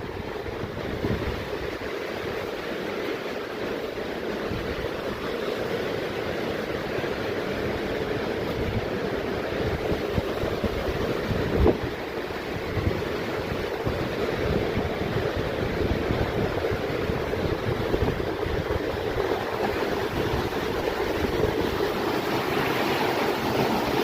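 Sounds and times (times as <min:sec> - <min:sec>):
wind buffeting microphone: 0:00.0 - 0:02.6, 0:07.6 - 0:24.0
mountain water rushing: 0:00.0 - 0:24.0.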